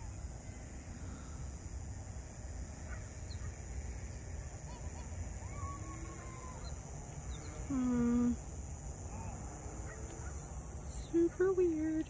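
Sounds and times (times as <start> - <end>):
faint bird calls: 4.6 - 8.4.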